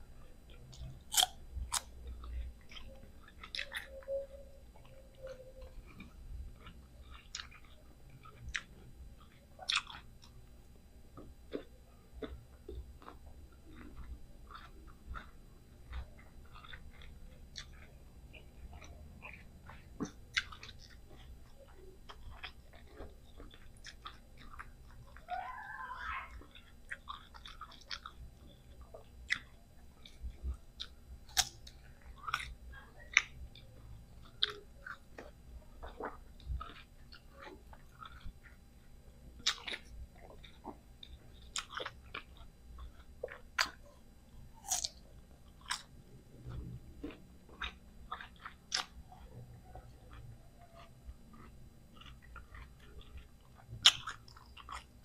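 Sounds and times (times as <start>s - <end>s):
crunching bites and chewing: 0.5s - 4.0s, 4.7s - 10.5s, 11.1s - 25.3s, 26.3s - 55.0s.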